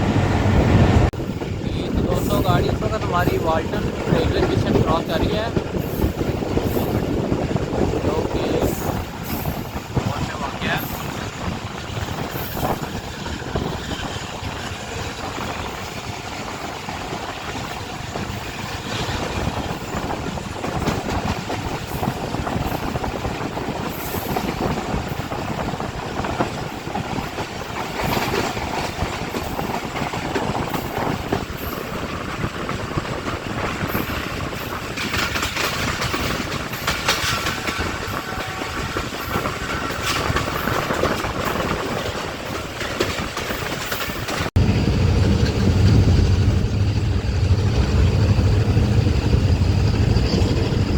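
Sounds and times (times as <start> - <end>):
train wheels clattering over rail joints: 0.9 - 50.9.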